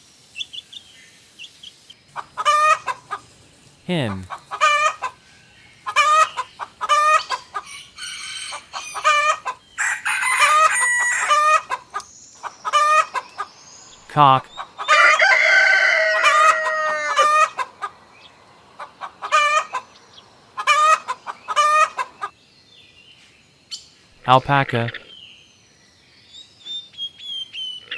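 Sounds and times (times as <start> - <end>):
hen clucking: 2.0 - 22.4
rooster crowing: 4.6 - 11.8, 14.8 - 18.0.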